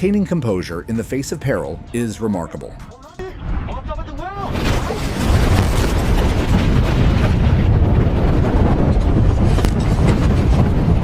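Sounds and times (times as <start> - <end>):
loud low rumble: 3.2 - 11.0
wind buffeting microphone: 4.9 - 11.0.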